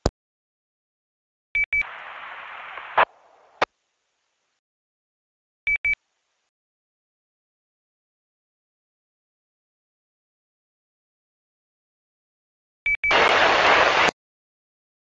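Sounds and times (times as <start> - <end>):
radio double beep: 1.6 - 3.7, 12.9 - 14.1
radio squelch click: 1.6 - 3.7
radio squelch hiss: 1.8 - 3.7, 13.1 - 14.1.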